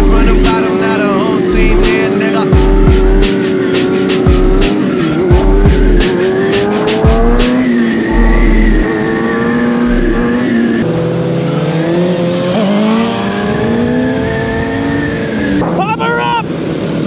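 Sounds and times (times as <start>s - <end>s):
deep bass hits from hip-hop track: 0.0s - 8.9s, 9.8s - 10.2s
motorcycle engine running: 0.0s - 8.9s.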